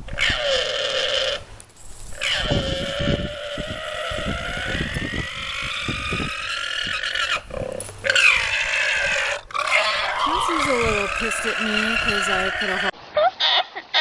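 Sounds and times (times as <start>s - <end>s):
animal long drawn-out call: 0.1s - 1.4s, 2.1s - 14.0s.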